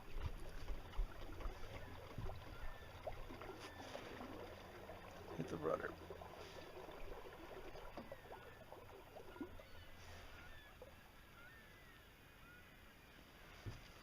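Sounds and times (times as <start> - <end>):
faint water sounds: 0.0 - 14.0
faint bird chirps: 1.6 - 4.7, 7.8 - 14.0.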